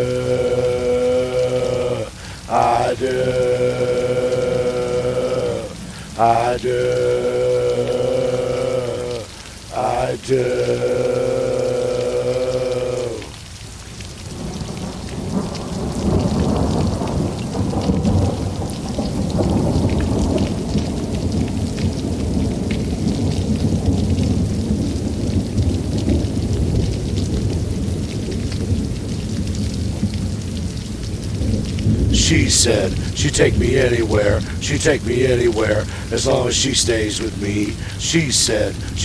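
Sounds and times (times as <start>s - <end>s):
rain falling: 0.0s - 39.0s
thunder rumbling: 14.4s - 39.0s.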